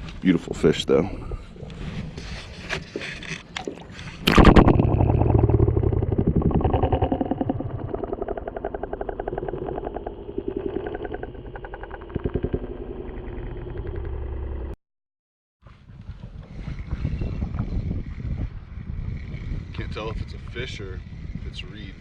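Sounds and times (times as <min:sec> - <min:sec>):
muffled underwater churning: 0:01.1 - 0:14.8
camera splashing into water: 0:03.6 - 0:05.3.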